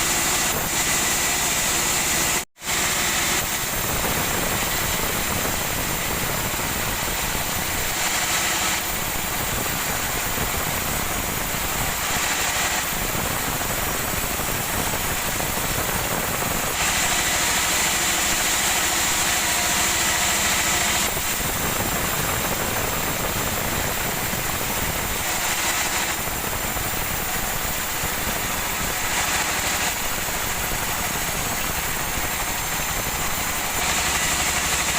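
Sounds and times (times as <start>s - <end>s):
sawmill machinery running: 0.0s - 34.9s.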